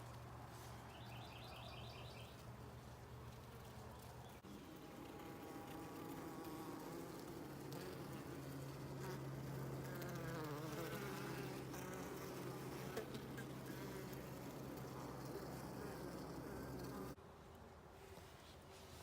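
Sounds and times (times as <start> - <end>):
honeybees buzzing: 4.4 - 17.2.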